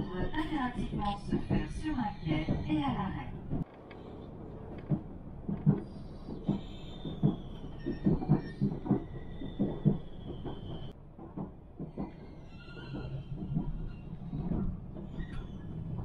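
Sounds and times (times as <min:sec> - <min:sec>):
train rumble: 0:00.0 - 0:16.0
high wheel squeal: 0:06.5 - 0:10.9, 0:12.2 - 0:16.0.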